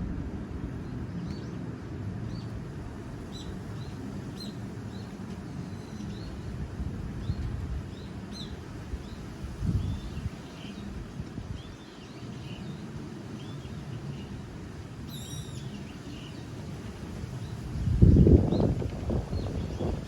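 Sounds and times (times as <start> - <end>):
wind buffeting microphone: 6.0 - 11.9, 16.8 - 20.0
small birds chirping: 15.1 - 16.5.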